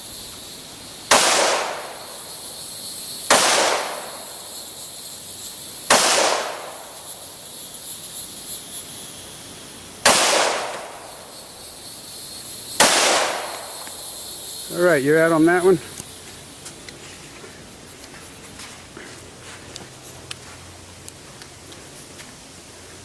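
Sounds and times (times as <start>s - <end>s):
pistol shots with echo: 1.1s - 2.0s, 3.3s - 4.2s, 5.9s - 6.8s, 10.0s - 11.0s, 12.8s - 13.7s.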